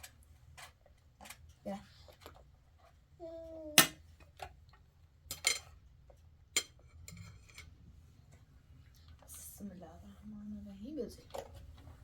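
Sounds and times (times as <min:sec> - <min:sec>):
dishes and utensils clinking: 0:05.2 - 0:05.8, 0:06.5 - 0:07.8.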